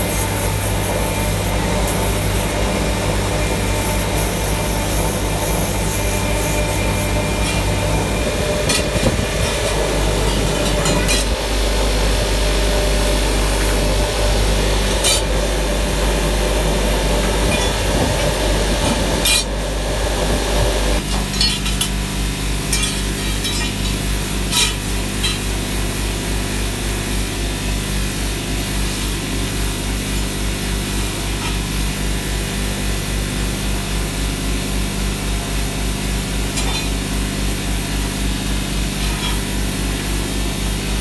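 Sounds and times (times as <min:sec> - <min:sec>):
machine pulsing hum: 0:00.0 - 0:21.0
metalworking machinery running: 0:00.0 - 0:41.0.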